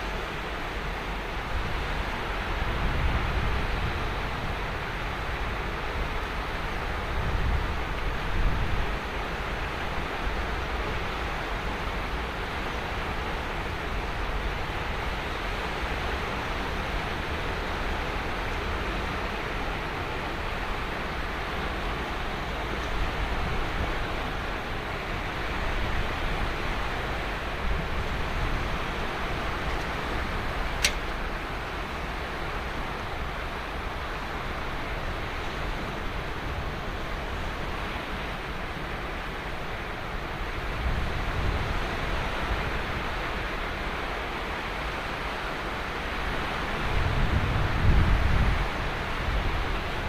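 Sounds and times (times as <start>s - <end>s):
ocean waves washing onto beach: 0.0s - 50.0s
short sharp click: 30.8s - 31.0s.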